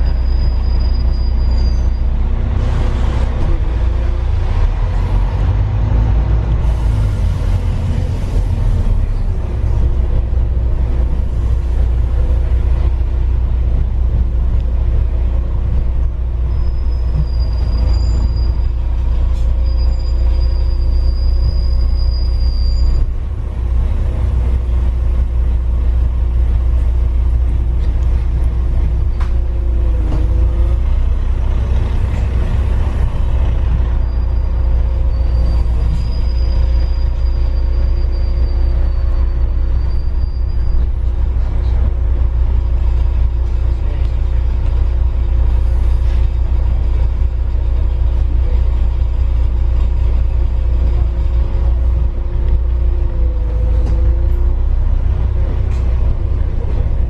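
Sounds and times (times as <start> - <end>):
high-pitched squeal: 0.0 - 2.2, 16.4 - 23.2, 33.0 - 41.1
rail vehicle rumbling: 0.0 - 57.0.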